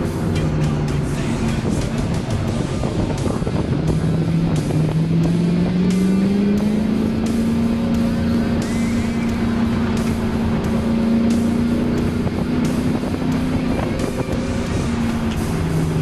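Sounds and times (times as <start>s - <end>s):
car engine from inside cabin: 0.0s - 16.0s
road rumble: 0.0s - 16.0s.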